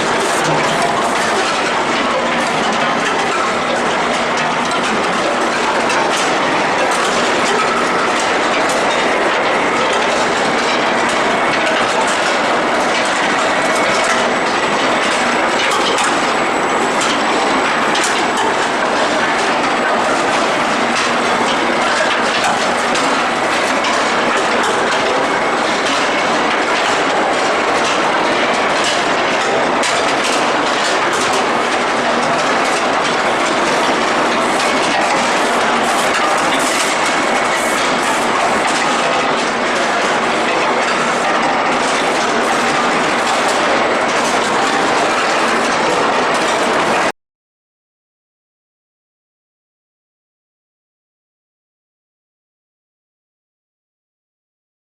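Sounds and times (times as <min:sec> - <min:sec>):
metal clattering on metal: 0:00.0 - 0:09.0.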